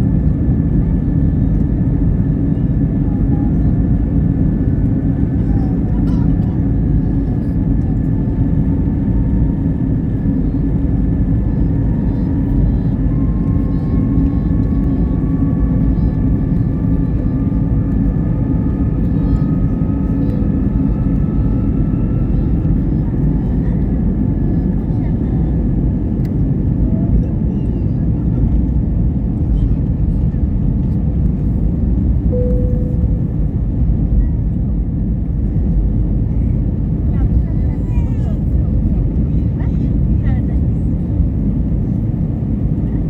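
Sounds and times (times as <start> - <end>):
jet engines rumbling in cabin: 0.0 - 43.0
brief steady tone: 32.3 - 33.7.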